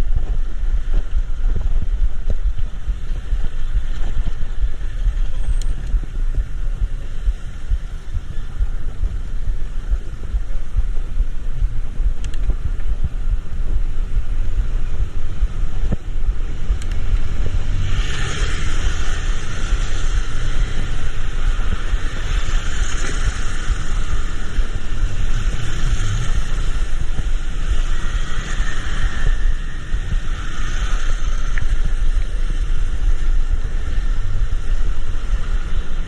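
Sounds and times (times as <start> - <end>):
wind rumbling on microphone: 0.0 - 36.0
wet road hiss: 13.2 - 36.0.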